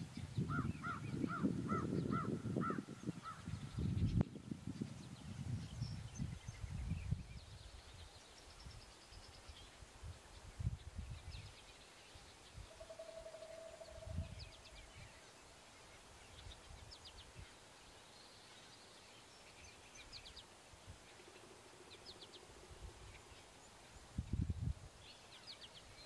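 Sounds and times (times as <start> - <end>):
faint bird calls: 0.4 - 3.8, 12.6 - 17.6.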